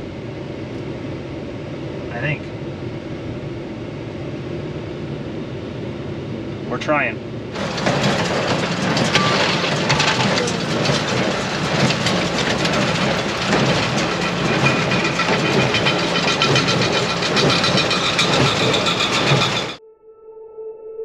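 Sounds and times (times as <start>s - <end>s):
engine hum: 0.0s - 19.8s
machinery rattling and clatter: 7.5s - 19.8s.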